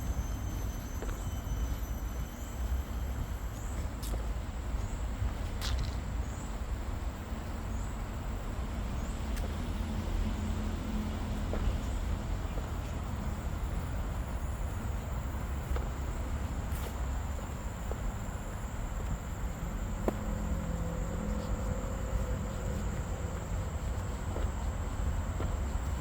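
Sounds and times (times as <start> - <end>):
high insect drone: 0.0 - 26.0
low rumble: 8.4 - 26.0.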